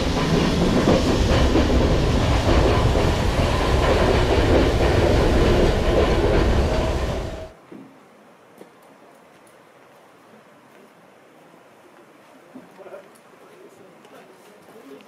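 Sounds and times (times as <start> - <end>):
train rumbling in tunnel: 0.0 - 7.6.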